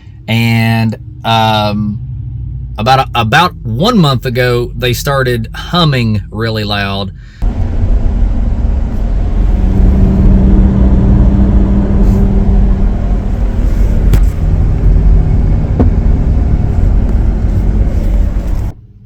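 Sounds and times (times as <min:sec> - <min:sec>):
road rumble: 0:00.0 - 0:19.0
wheel bearing hum: 0:07.4 - 0:18.8.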